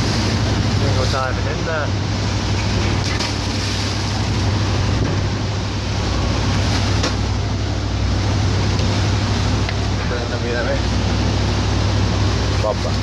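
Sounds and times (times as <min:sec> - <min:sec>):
boat engine droning: 0:00.0 - 0:13.0
water and wind hiss: 0:00.0 - 0:13.0.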